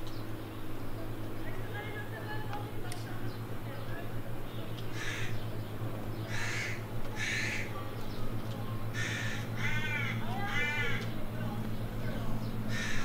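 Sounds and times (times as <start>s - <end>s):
steady low hum: 0.0s - 13.0s
bird giving harsh calls: 4.6s - 7.9s, 8.8s - 11.4s, 12.3s - 13.0s.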